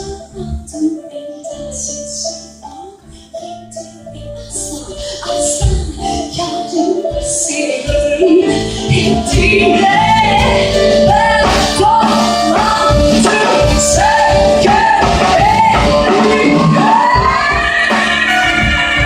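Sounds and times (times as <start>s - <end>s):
person singing: 0.0s - 19.0s
live band playing: 5.0s - 19.0s.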